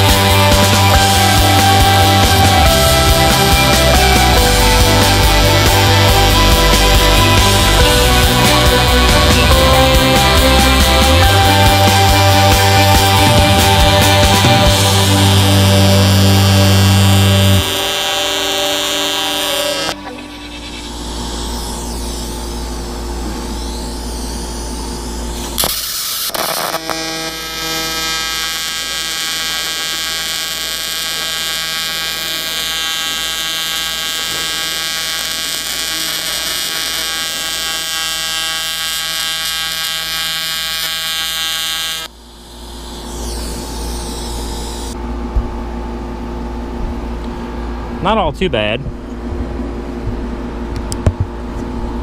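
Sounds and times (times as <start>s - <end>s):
tig welding arc buzzing: 0.0s - 45.1s
steady low hum: 0.0s - 52.0s
arc crackle: 13.1s - 45.0s.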